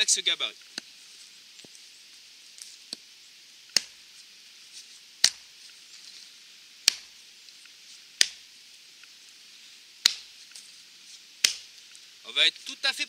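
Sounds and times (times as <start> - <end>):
hatchet chopping into log: 3.7 - 4.0, 5.2 - 5.5, 6.8 - 7.1, 8.2 - 8.4, 10.0 - 10.3, 11.4 - 11.7.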